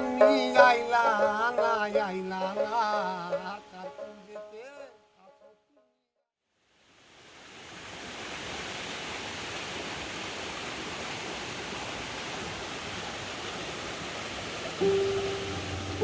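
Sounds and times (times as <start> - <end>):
water running over rocks: 6.9 - 16.0.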